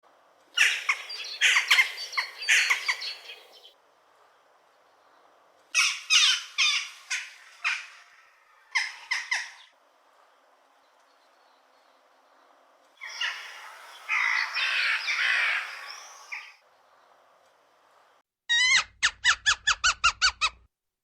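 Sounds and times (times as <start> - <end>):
jackdaw harsh calls: 0.6 - 3.7, 13.0 - 16.6.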